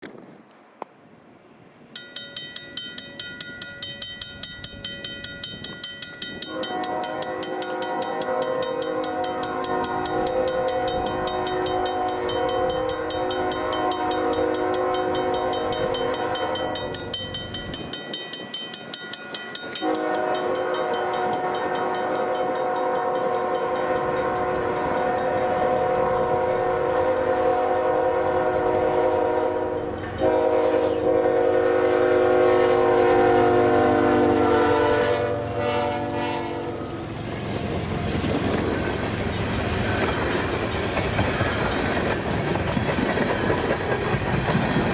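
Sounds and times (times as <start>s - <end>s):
fast pulsing ringing: 2.0s - 22.7s
locomotive horn blasts: 6.4s - 17.0s, 19.8s - 37.0s.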